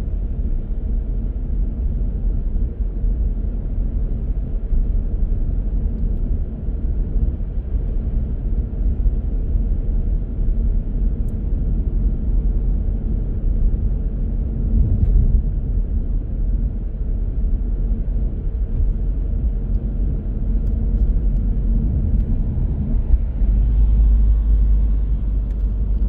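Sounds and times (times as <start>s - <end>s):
car driving: 16.6s - 26.0s.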